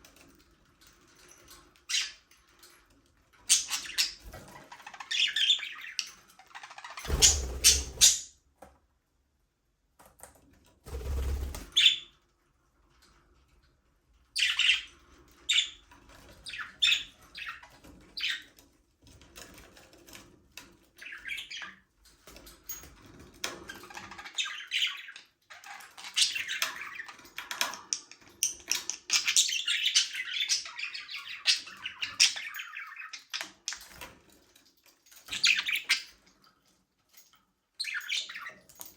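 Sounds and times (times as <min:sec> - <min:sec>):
budgerigars chirping and chattering: 0:03.4 - 0:08.3, 0:14.4 - 0:15.8, 0:16.4 - 0:18.5, 0:21.0 - 0:21.8, 0:23.8 - 0:33.8, 0:35.3 - 0:36.1.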